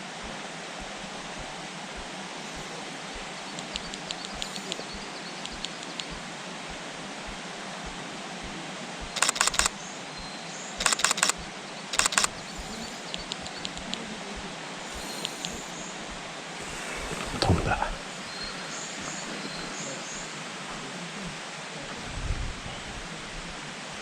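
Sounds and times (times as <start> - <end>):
faint outdoor hiss: 0.0 - 24.0
camera shutter bursts: 9.2 - 9.8, 10.8 - 13.9.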